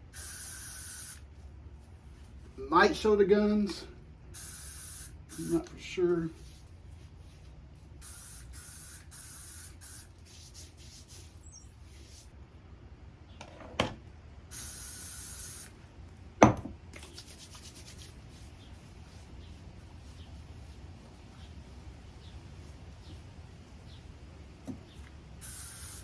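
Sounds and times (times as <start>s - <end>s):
aerosol spray hissing: 0.1s - 1.3s, 4.3s - 6.6s, 8.0s - 12.2s, 14.5s - 15.8s, 25.4s - 26.0s
hands rubbing skin: 17.0s - 19.4s.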